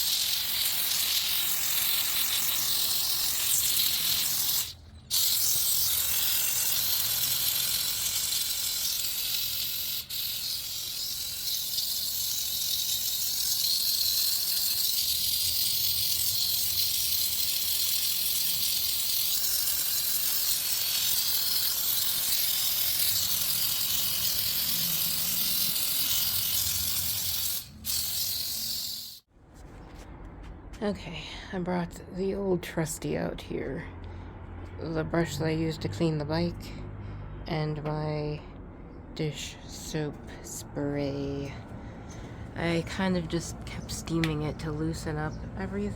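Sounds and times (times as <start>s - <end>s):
steam cleaner hissing: 0.0s - 29.3s.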